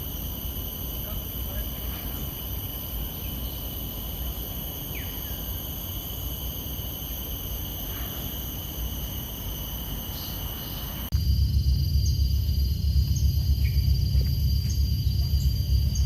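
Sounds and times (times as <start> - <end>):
insects trilling: 0.0 - 16.0
low rumble: 11.1 - 16.0.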